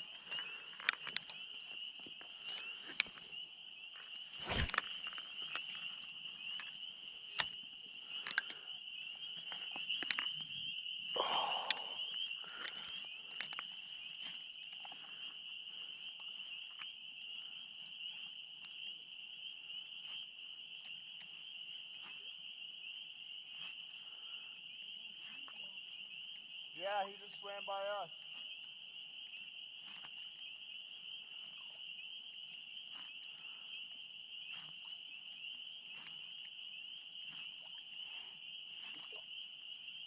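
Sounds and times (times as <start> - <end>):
high-pitched insect trill: 0.0 - 40.0
scattered clicks: 7.3 - 8.6.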